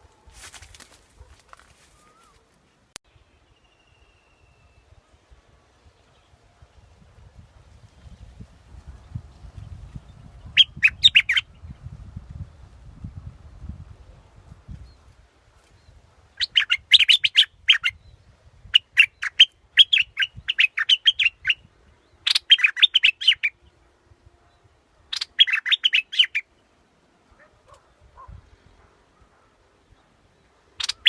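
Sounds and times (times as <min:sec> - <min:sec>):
bird singing chirpy notes: 0:10.5 - 0:11.4, 0:16.4 - 0:23.7, 0:25.1 - 0:26.4, 0:30.8 - 0:31.0.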